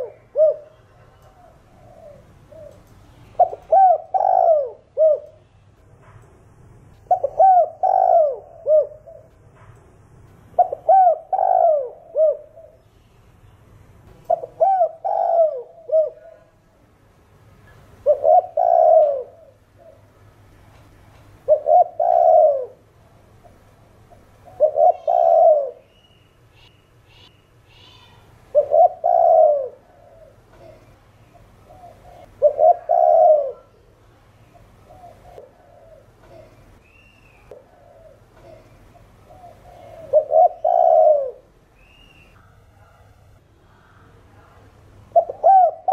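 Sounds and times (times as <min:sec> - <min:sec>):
dove cooing: 0:00.0 - 0:02.8, 0:03.4 - 0:05.4, 0:07.1 - 0:09.3, 0:10.6 - 0:12.8, 0:14.3 - 0:16.6, 0:18.0 - 0:20.2, 0:21.4 - 0:22.8, 0:24.1 - 0:25.9, 0:28.0 - 0:33.9, 0:34.5 - 0:36.7, 0:37.5 - 0:41.5, 0:45.1 - 0:45.9.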